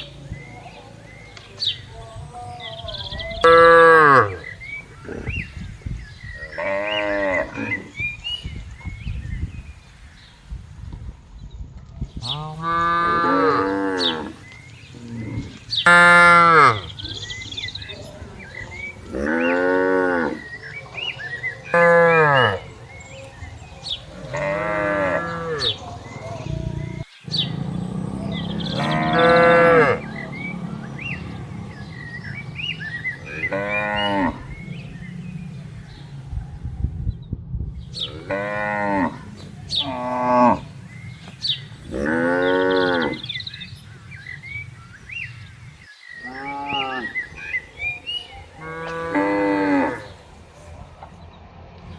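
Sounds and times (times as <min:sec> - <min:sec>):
cattle mooing: 0:12.3 - 0:14.4, 0:19.0 - 0:20.6, 0:24.1 - 0:35.7, 0:38.0 - 0:40.7, 0:41.8 - 0:43.3, 0:48.6 - 0:50.2.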